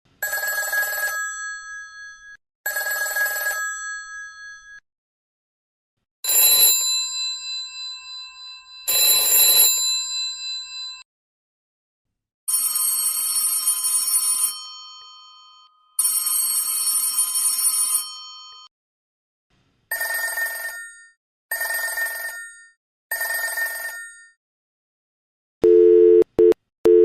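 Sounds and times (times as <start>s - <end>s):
cellphone ringtone ringing: 0.2s - 4.8s, 6.3s - 11.0s, 12.5s - 18.7s, 19.9s - 24.4s.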